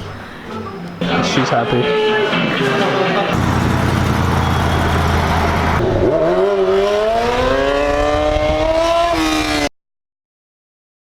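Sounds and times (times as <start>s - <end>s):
road noise: 0.0s - 9.6s
vehicle engine accelerating: 3.3s - 9.7s.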